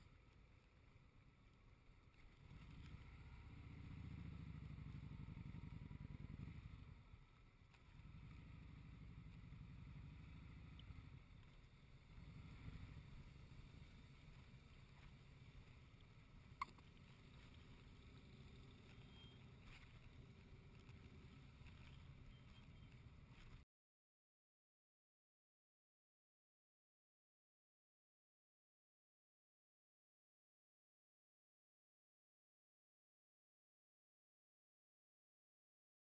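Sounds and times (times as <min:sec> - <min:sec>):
motorcycle rumbling along road: 0:00.0 - 0:23.6.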